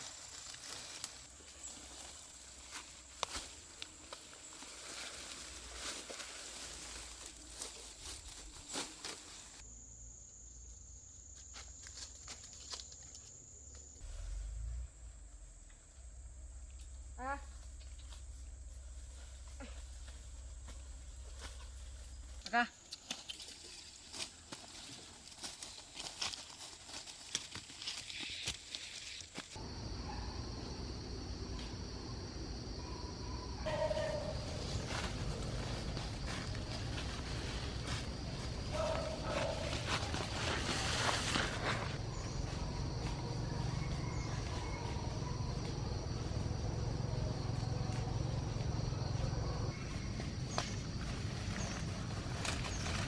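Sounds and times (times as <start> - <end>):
dry plant material crackling: 0.0 - 9.6, 18.0 - 29.6, 34.0 - 42.0, 50.4 - 53.0
steady outdoor hiss: 0.0 - 43.2, 44.4 - 53.0
insect chorus: 0.0 - 53.0
high insect-like tone: 6.6 - 30.0.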